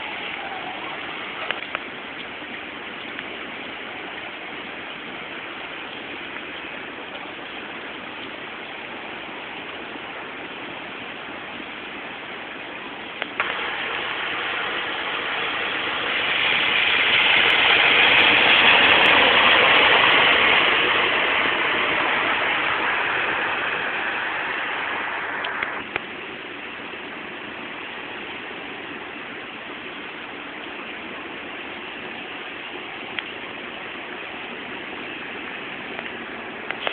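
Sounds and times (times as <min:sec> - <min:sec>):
floodwater running: 0:00.0 - 0:36.9
heavy rain: 0:00.0 - 0:36.9
loud hiss: 0:13.3 - 0:25.9.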